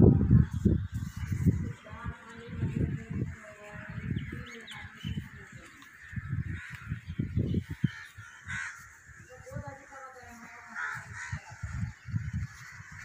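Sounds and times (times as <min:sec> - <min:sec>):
birds chirping: 0:00.3 - 0:13.0.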